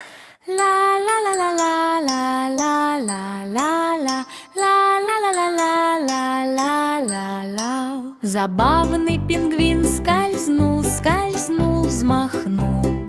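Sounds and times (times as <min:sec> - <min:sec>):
person singing: 0:00.5 - 0:13.0
music: 0:08.6 - 0:13.0.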